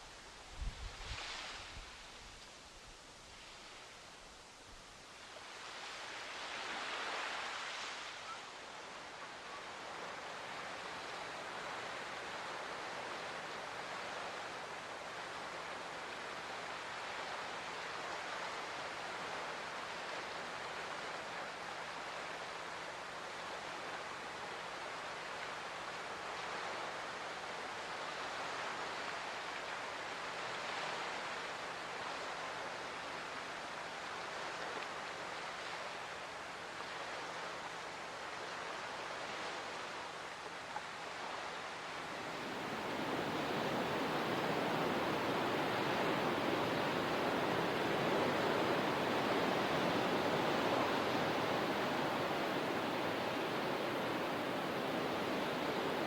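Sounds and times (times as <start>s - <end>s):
water rushing: 37.7s - 56.0s.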